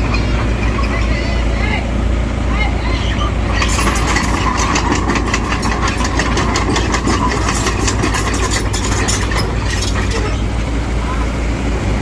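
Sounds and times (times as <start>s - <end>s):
rapid clatter: 0.0s - 1.8s, 3.3s - 10.6s
diesel engine running: 0.0s - 12.0s.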